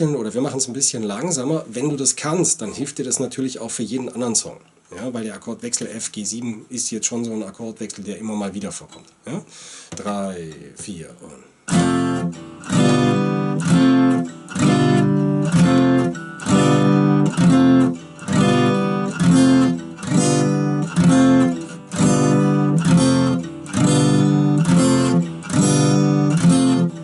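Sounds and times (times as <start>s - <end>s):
acoustic guitar strumming: 11.7s - 27.0s.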